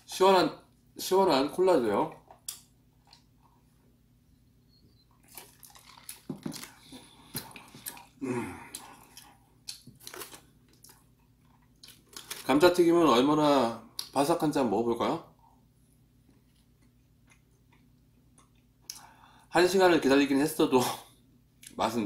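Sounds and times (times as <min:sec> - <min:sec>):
wet mouth clicks and chewing: 0:05.2 - 0:12.4
person swallowing: 0:07.3 - 0:09.2.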